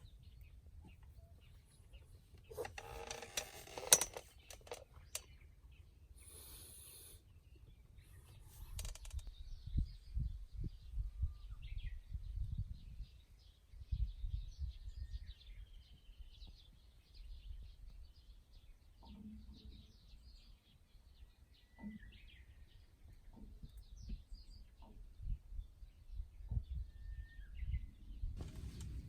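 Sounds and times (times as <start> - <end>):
small birds chirping: 0.0 - 29.0
wind rumble on microphone: 8.3 - 20.4, 22.1 - 29.0.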